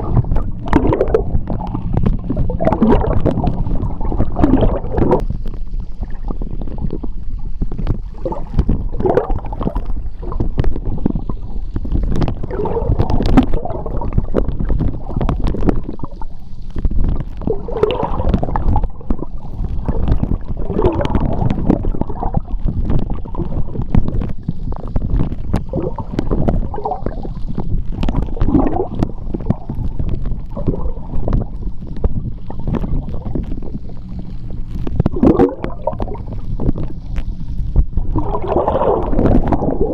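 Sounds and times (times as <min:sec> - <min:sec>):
gurgling bubbles: 0:00.0 - 0:39.9
small clicks and ticks: 0:00.0 - 0:39.9
underwater rumble of water: 0:00.0 - 0:39.9.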